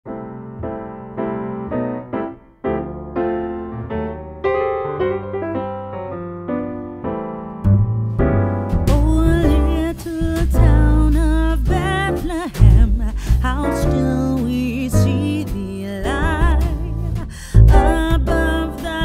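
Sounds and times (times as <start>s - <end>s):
electric piano chords: 0.1s - 19.0s
heavy bass beat: 7.7s - 19.0s
person singing: 8.9s - 19.0s.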